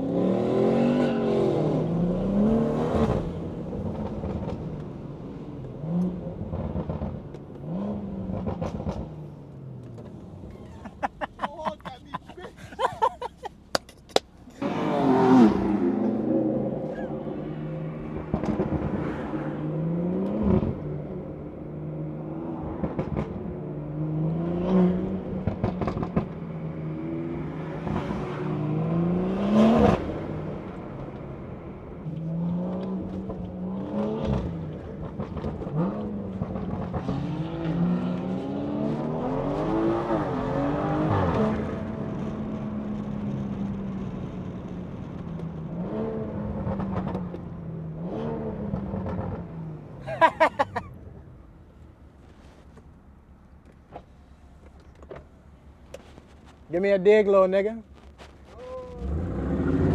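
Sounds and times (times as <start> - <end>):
car engine accelerating through gears: 0.0 - 11.4, 14.4 - 51.6, 58.9 - 59.9
sharp exhaust pops: 13.4 - 14.7.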